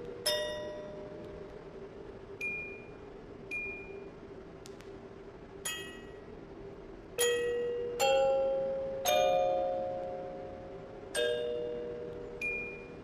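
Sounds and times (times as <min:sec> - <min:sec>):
music box playing slow tune: 0:00.0 - 0:01.5, 0:02.4 - 0:02.9, 0:03.5 - 0:04.0, 0:05.6 - 0:06.2, 0:07.2 - 0:13.0.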